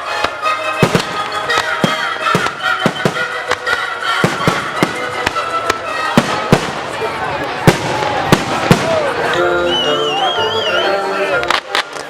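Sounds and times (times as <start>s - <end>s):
fireworks bursting: 0.0s - 9.4s
music playing: 0.0s - 12.0s.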